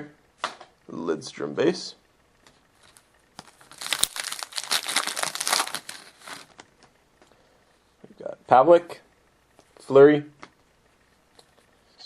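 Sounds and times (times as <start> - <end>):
card wrapper tearing and crinkling: 2.8 - 6.6.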